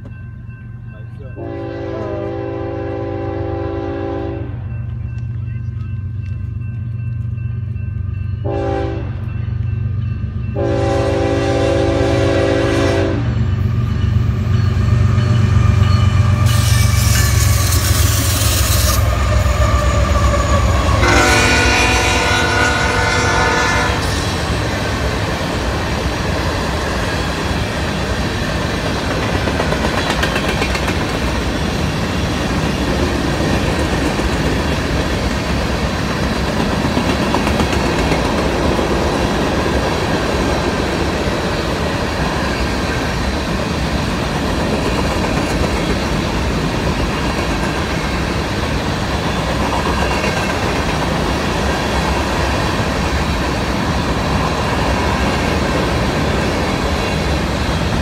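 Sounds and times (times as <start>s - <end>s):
diesel locomotives running: 0.0s - 58.0s
locomotive air horn blasts: 1.4s - 4.6s, 8.5s - 9.2s, 10.6s - 13.4s, 16.4s - 24.5s
wheels clattering on rail joints: 24.2s - 58.0s.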